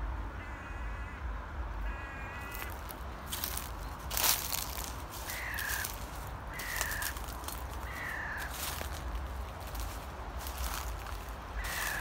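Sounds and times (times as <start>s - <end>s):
footsteps crunching dry leaves: 2.4s - 12.0s.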